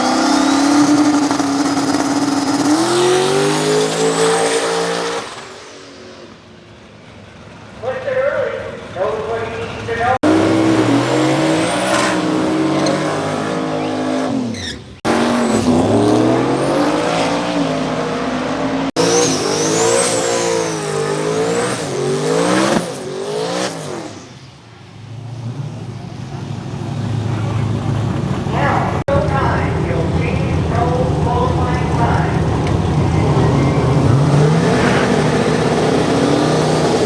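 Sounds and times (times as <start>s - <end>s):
race car engines at full throttle: 0.0s - 37.0s
high whistle: 33.0s - 34.2s.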